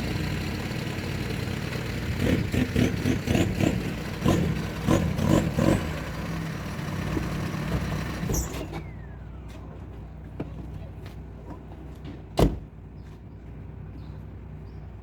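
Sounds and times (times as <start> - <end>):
truck engine running: 0.0 - 12.1
clunks and rattles: 11.4 - 12.8.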